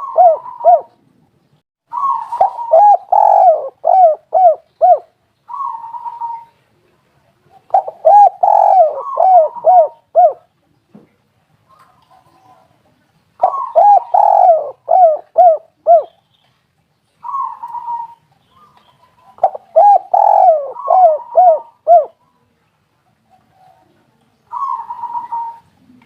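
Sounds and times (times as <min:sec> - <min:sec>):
dove cooing: 0:00.0 - 0:01.0, 0:01.9 - 0:10.5, 0:13.4 - 0:16.2, 0:17.2 - 0:22.3, 0:23.2 - 0:26.0.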